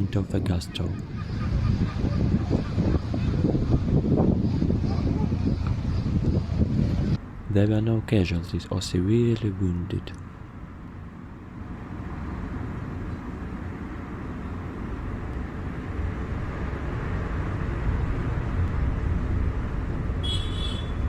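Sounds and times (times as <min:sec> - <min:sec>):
wind on microphone: 0:00.0 - 0:07.4.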